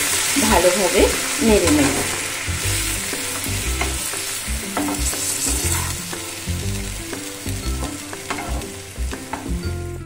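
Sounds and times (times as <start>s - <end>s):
frying sizzle: 0.0s - 10.0s
spatula scraping pan: 4.7s - 6.0s.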